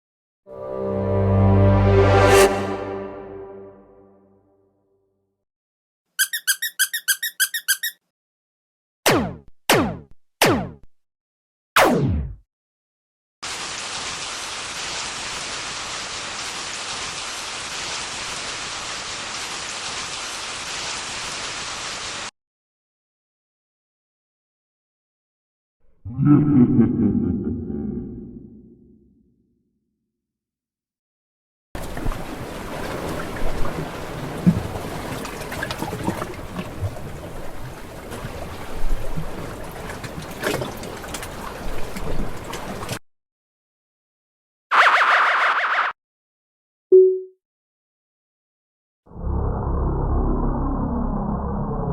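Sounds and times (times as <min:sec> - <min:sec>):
heavy rain patter: 0:13.4 - 0:22.3
water sloshing and trickling: 0:31.8 - 0:43.0.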